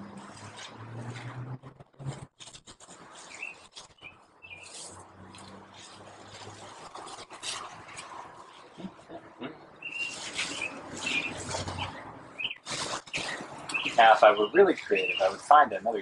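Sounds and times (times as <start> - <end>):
faint outdoor hiss: 2.9 - 16.0
small birds chirping: 3.1 - 5.0, 8.7 - 16.0.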